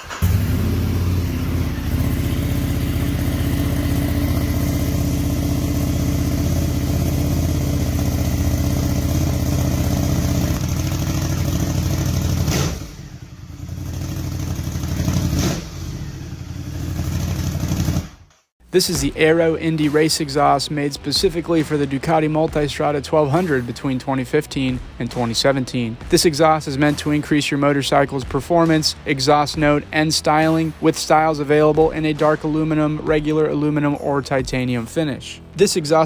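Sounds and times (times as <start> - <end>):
motorcycle engine deep exhaust note: 0.2 - 18.2.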